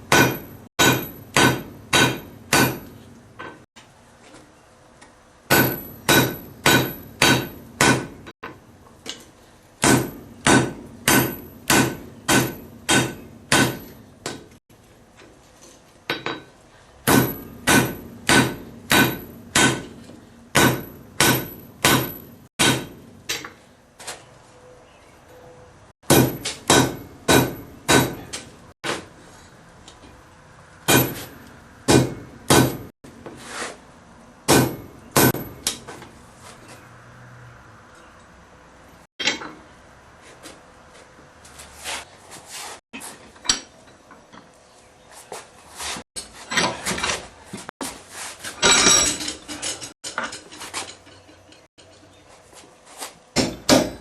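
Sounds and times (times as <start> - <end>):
hammer striking metal on anvil: 0.0 - 3.6, 5.5 - 8.3, 9.8 - 14.6, 16.1 - 23.6, 26.0 - 28.4, 30.9 - 32.9, 34.5 - 35.9, 53.4 - 54.0.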